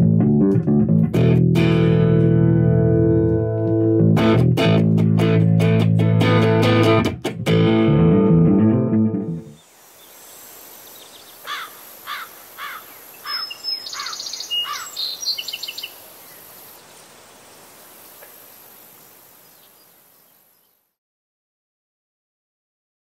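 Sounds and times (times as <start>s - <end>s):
steady outdoor hiss: 9.4s - 21.0s
birds chirping and trilling: 9.6s - 20.9s.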